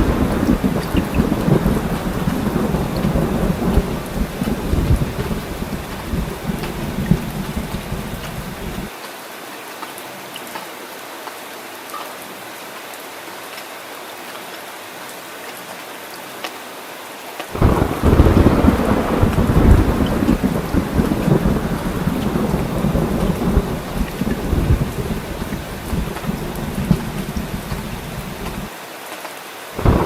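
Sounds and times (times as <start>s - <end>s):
loud thunderclap: 0.0s - 8.9s, 17.6s - 28.7s, 29.8s - 30.0s
thunder rumbling: 0.0s - 8.9s, 17.6s - 28.7s, 29.8s - 30.0s
water dripping: 0.0s - 8.9s, 17.6s - 28.7s
heavy rain hissing: 0.0s - 9.0s, 17.5s - 30.0s.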